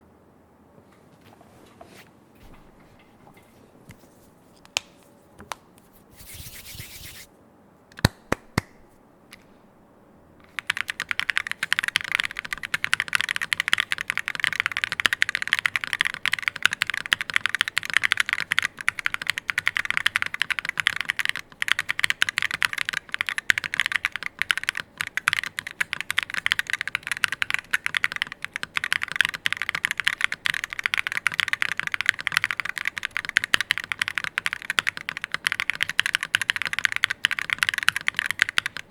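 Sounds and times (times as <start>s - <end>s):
mechanical keyboard typing: 10.4s - 38.9s.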